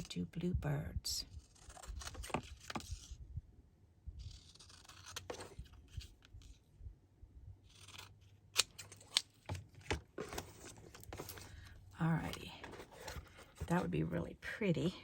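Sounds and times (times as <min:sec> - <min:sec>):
scissors cutting paper: 0:01.3 - 0:03.2, 0:04.2 - 0:06.6, 0:07.7 - 0:09.3.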